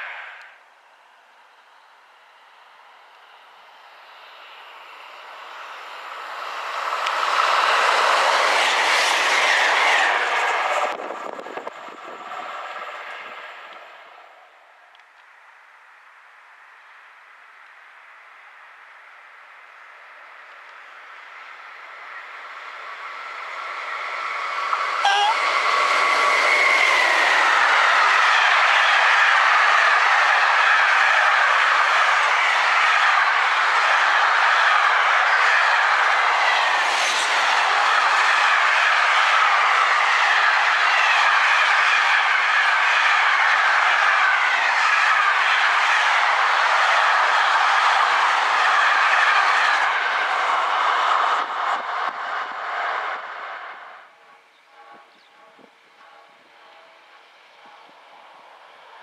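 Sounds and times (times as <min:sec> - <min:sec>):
electric locomotive whine: 0:00.0 - 0:15.8, 0:16.7 - 0:59.0
train wheels rumbling and clattering: 0:06.2 - 0:14.2, 0:22.6 - 0:59.0.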